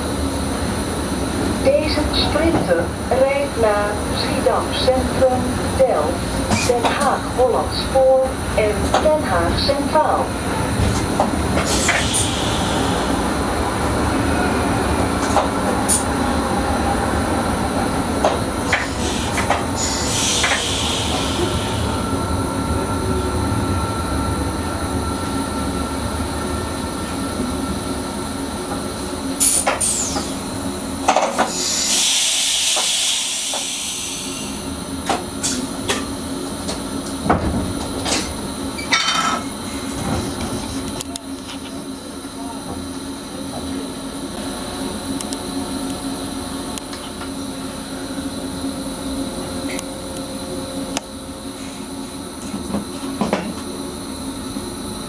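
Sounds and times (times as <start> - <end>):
train rumble: 0.0 - 55.0
air hiss: 18.9 - 21.8, 31.5 - 34.7.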